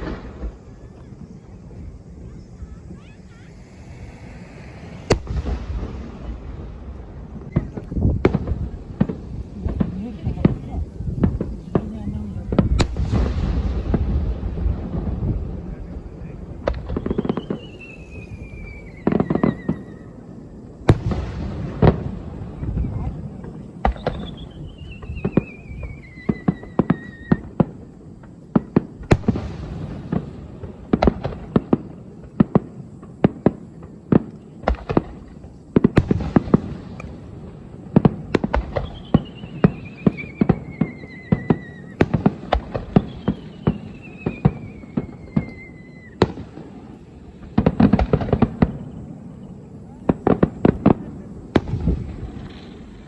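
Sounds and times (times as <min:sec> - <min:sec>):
fireworks whistles sliding down: 0:00.0 - 0:08.2, 0:15.8 - 0:21.2, 0:23.8 - 0:27.9, 0:37.9 - 0:49.0
fireworks bangs and crackles: 0:00.0 - 0:53.0.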